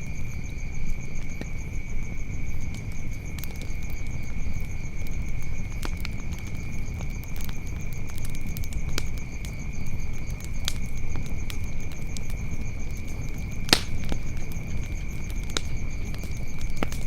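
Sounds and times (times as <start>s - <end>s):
wood fire crackling: 2.0s - 17.0s
sharp pops: 13.7s - 14.2s.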